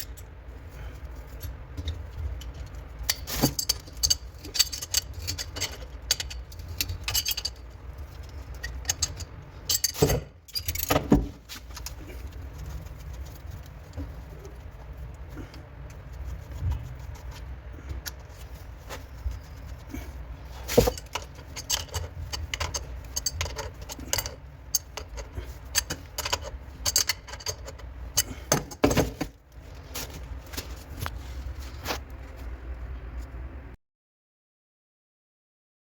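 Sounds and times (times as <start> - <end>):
low steady hum: 0.0 - 33.8
metallic clicks of plumbing tools: 1.4 - 12.4, 20.7 - 29.0.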